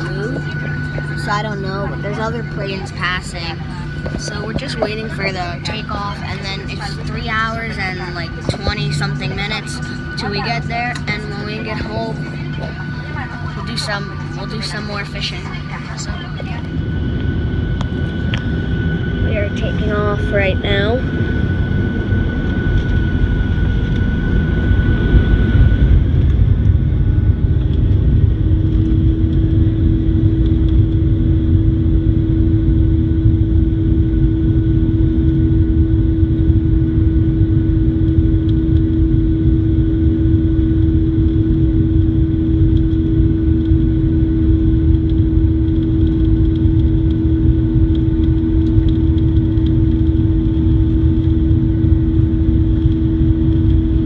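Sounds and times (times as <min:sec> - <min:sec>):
high steady tone: 0:00.0 - 0:22.3
jet engine noise in cabin: 0:00.0 - 0:54.0
steady hum: 0:00.0 - 0:54.0.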